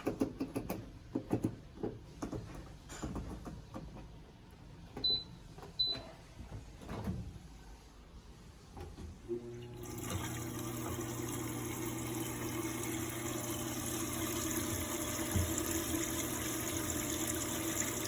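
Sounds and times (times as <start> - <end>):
washing machine clicks and knocks: 4.9 - 7.4, 14.1 - 18.0.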